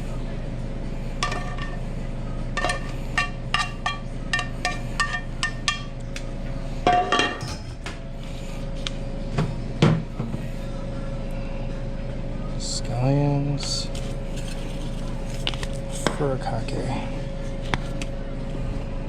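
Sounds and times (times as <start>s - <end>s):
steady kitchen hum: 0.0s - 19.0s
utensils clattering: 1.2s - 1.8s, 2.6s - 5.9s, 6.8s - 7.9s
utensils clinking against bowls: 1.2s - 1.8s, 2.6s - 6.0s, 6.8s - 7.8s.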